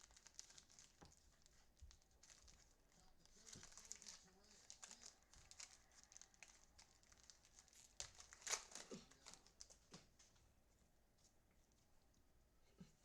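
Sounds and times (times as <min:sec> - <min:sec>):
foil card packs crinkling: 0:00.0 - 0:10.0.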